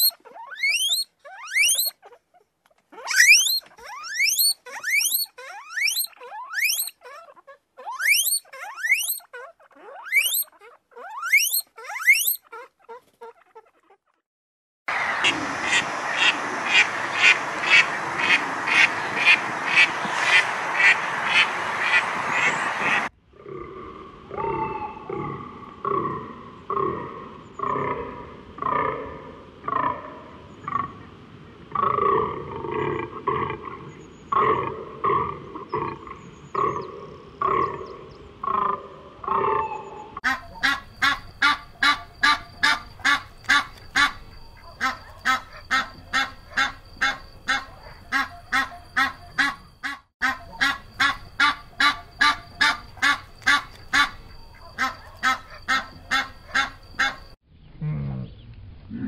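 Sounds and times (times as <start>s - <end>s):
animal giving pitched calls: 0.0s - 14.2s, 14.9s - 31.0s, 31.8s - 57.4s
goose honking: 40.2s - 57.2s.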